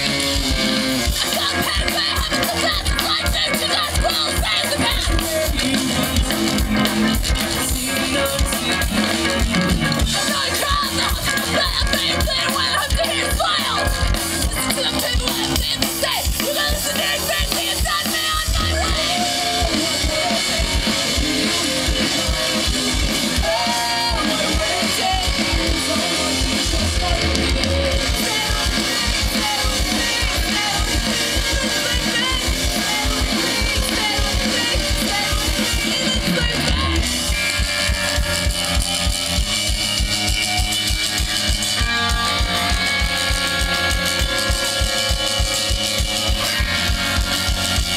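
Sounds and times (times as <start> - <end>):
person singing: 0.0 - 39.7, 40.7 - 47.9
electric guitars: 0.0 - 47.9
fast drum beat: 0.0 - 47.9.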